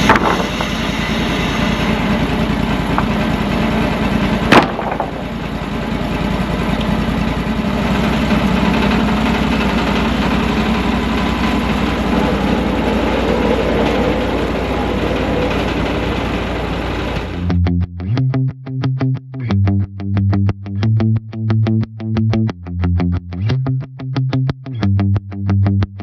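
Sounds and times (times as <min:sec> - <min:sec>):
sawmill engine running: 0:00.0 - 0:17.6.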